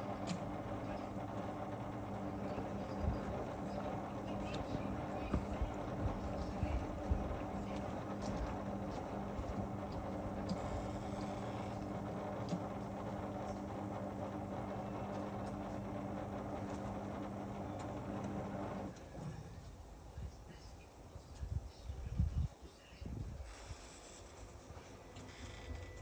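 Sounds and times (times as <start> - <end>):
washing machine motor hum: 0.0 - 19.5.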